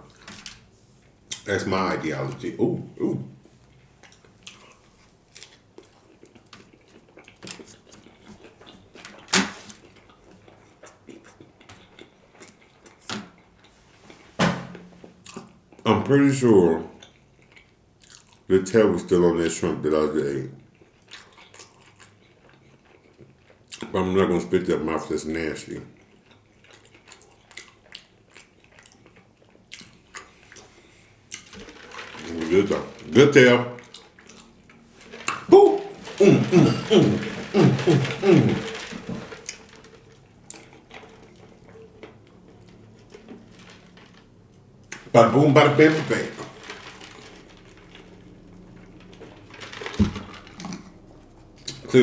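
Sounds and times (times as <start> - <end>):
person chewing food: 3.4 - 14.3, 17.0 - 18.5, 20.6 - 23.9, 26.0 - 32.3, 33.8 - 43.4.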